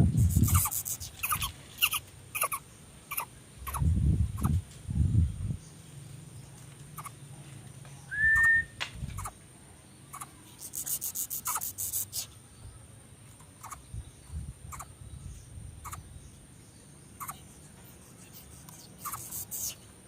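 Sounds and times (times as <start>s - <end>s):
high-pitched ticks: 0.2s - 3.8s, 10.2s - 12.3s, 18.2s - 19.8s
whistled bird note: 8.1s - 8.8s.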